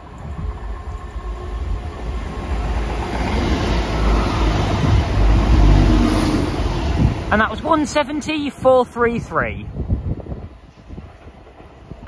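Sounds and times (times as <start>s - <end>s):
train wheels on rails: 0.0s - 9.0s, 9.8s - 12.0s
diesel train engines: 0.0s - 12.0s.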